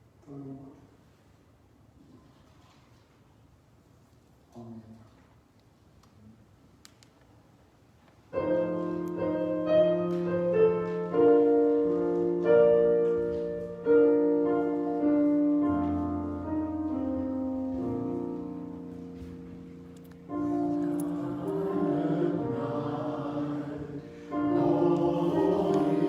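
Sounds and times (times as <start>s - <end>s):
piano playing hymn chords: 8.3s - 26.0s.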